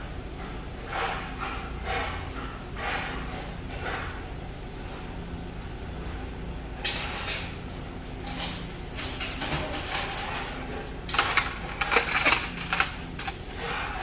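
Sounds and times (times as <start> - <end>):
spoons and forks clinking: 8.3 - 14.0.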